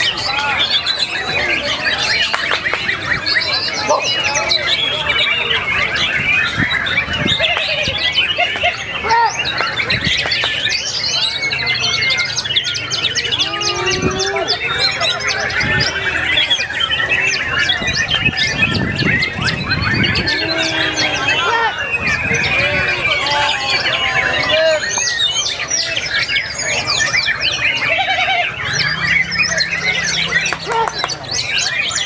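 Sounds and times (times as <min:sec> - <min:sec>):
songbirds singing: 0:00.0 - 0:32.0.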